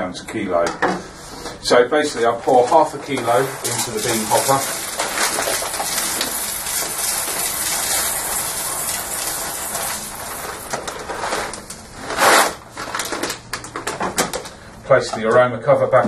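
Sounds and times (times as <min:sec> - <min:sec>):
coffee beans pouring into metal hopper: 0:02.5 - 0:13.3.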